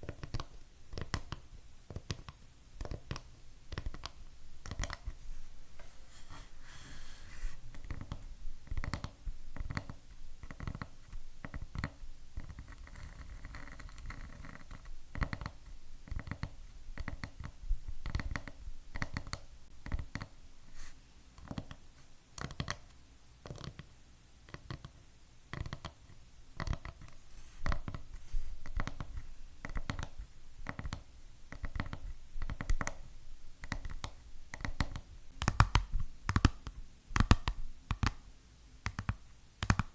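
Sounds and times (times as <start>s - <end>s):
nails scratching a surface: 5.8s - 8.0s.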